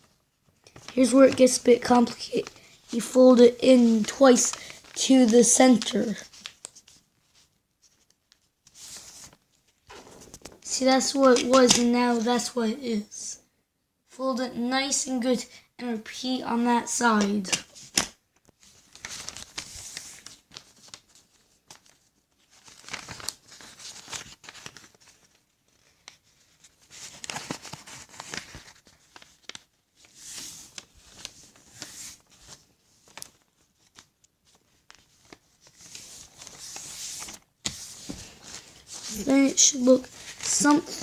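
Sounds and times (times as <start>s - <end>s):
paper rustling and crinkling: 0.0s - 12.3s, 17.2s - 41.0s
crisp paper snaps: 11.3s - 11.9s, 17.5s - 21.0s.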